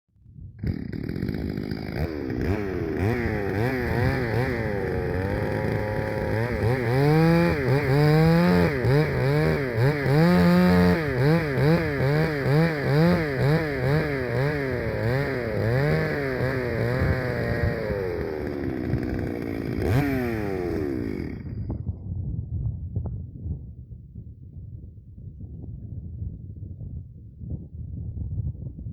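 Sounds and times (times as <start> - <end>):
chainsaw revving and cutting: 0.6 - 21.7.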